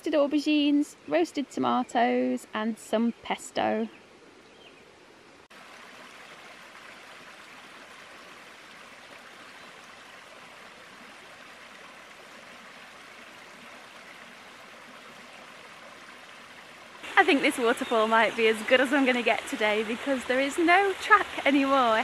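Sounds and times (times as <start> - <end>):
small waterfall rushing: 5.5 - 22.0.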